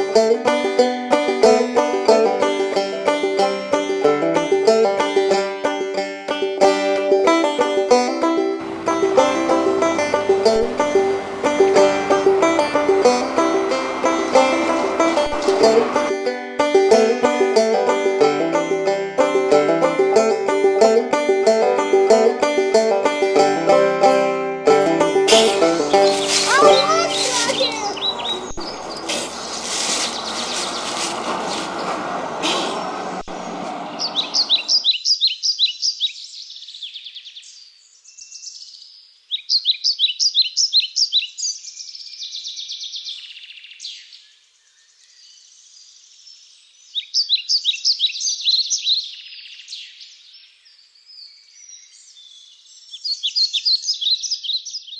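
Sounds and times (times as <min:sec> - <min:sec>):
dense wash of sound: 0:08.6 - 0:16.2
songbird singing: 0:25.0 - 0:54.9.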